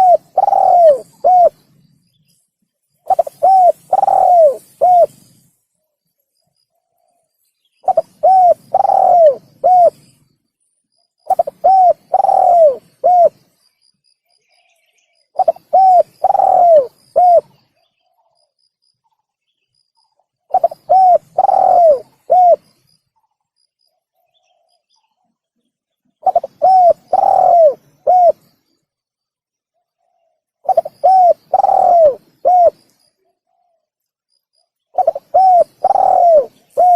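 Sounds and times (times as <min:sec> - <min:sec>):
dove cooing: 0:00.0 - 0:01.6, 0:03.0 - 0:05.4, 0:07.8 - 0:10.1, 0:11.3 - 0:13.4, 0:15.3 - 0:17.6, 0:20.5 - 0:22.8, 0:26.2 - 0:28.5, 0:30.0 - 0:33.8, 0:35.0 - 0:36.9.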